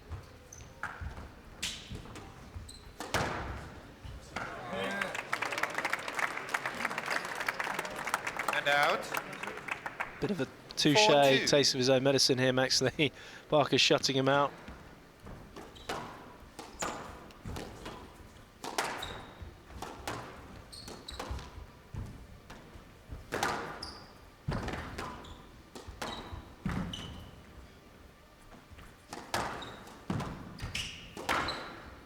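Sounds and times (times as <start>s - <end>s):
shoes squeaking on court floor: 0.0s - 5.1s, 14.4s - 22.7s, 23.4s - 27.8s, 28.8s - 32.0s
squash ball hitting rackets and walls: 0.7s - 4.6s, 15.3s - 27.3s, 29.0s - 32.0s.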